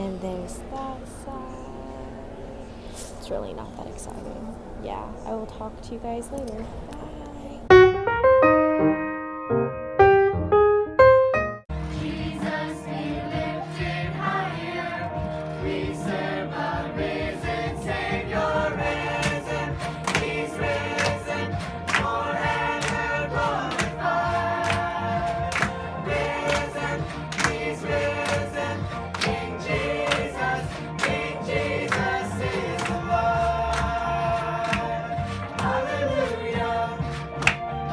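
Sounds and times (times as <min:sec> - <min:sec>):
piano notes: 0:07.1 - 0:37.9
choir singing a worship song: 0:11.7 - 0:37.9
percussion and accompaniment: 0:11.7 - 0:37.9.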